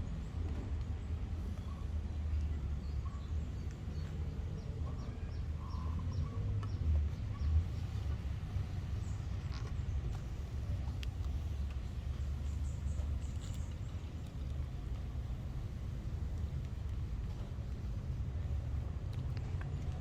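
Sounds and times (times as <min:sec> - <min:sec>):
outdoor background rumble: 0:00.0 - 0:20.0
faint bird chirps: 0:01.5 - 0:07.6.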